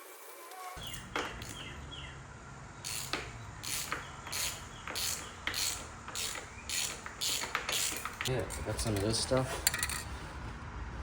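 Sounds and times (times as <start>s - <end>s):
hand tool rasping strokes: 2.9s - 8.3s.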